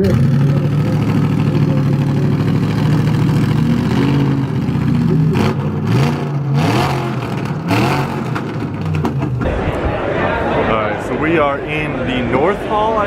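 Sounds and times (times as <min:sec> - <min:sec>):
car engine running and revving: 0:00.0 - 0:09.5.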